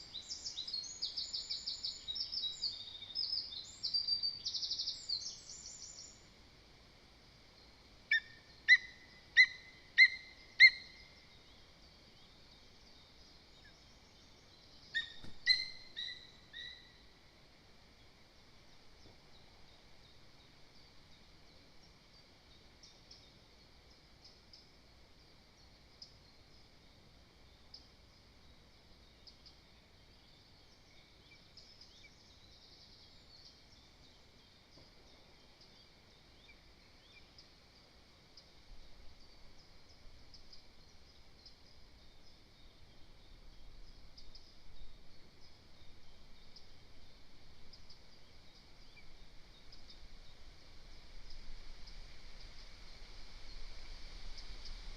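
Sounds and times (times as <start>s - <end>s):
bird chirps: 8.1s - 11.6s, 13.6s - 17.1s.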